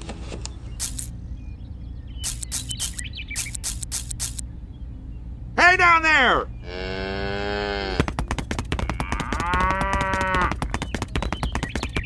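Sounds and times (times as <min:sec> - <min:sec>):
fast sharp clicks: 0:00.8 - 0:01.1, 0:02.2 - 0:04.4, 0:08.0 - 0:12.0
cows mooing: 0:06.6 - 0:08.1, 0:08.7 - 0:10.6.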